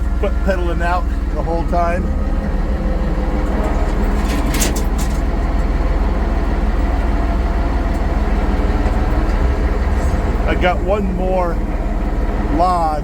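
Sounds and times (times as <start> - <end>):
tractor diesel engine running: 0.0 - 13.0
short metallic clatter: 3.5 - 5.5.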